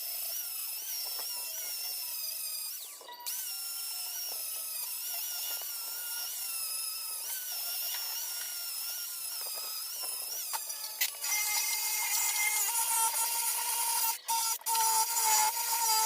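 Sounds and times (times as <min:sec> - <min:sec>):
power tool whining: 0:00.0 - 0:16.0.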